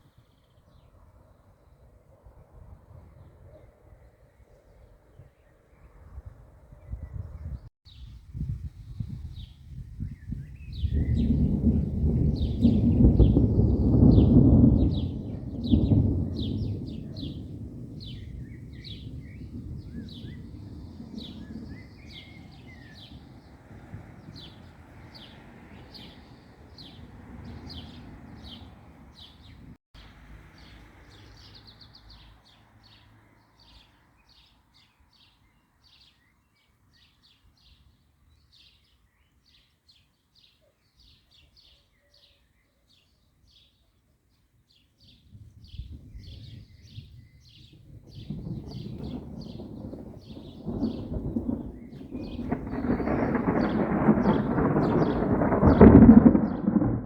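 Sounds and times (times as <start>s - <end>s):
birds chirping: 9.4s - 43.8s, 44.7s - 57.0s
thunder rumbling: 10.0s - 29.8s, 45.3s - 57.0s.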